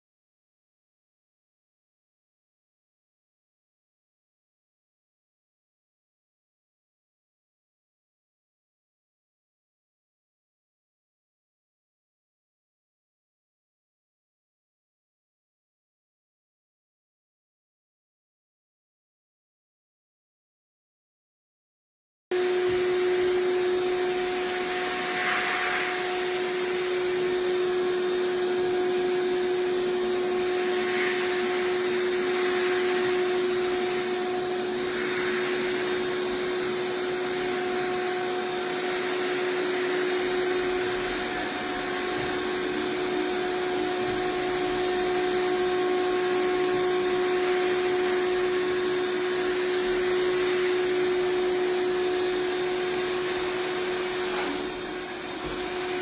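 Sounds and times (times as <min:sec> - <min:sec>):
robot vacuum running: 0:22.3 - 0:56.0
soft swishes: 0:23.6 - 0:28.2.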